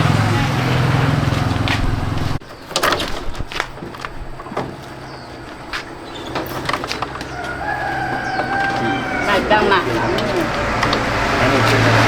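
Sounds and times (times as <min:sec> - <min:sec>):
motor hum: 0:00.0 - 0:02.4
sharp knocks and clatters: 0:00.7 - 0:08.9.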